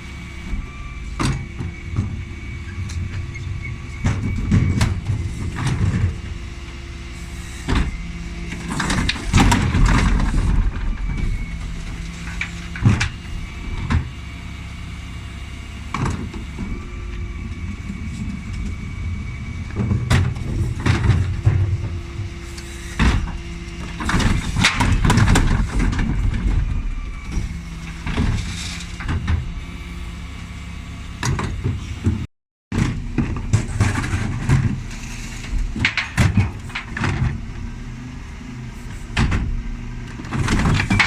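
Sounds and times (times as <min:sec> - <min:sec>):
refuse truck whining: 0:00.0 - 0:41.0
bin lift knocks and bangs: 0:31.2 - 0:41.0.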